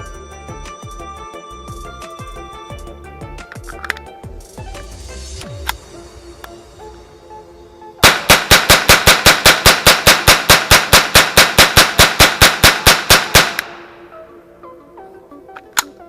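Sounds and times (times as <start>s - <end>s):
rifle fired rapidly: 8.0s - 14.0s.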